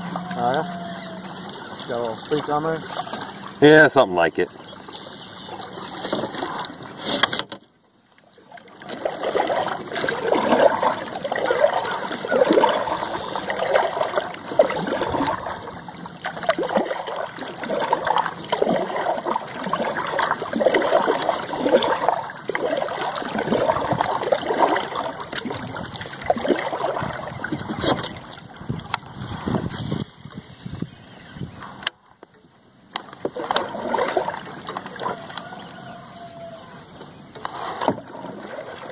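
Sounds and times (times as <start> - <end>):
water lapping against boat hull: 0.0 - 38.9.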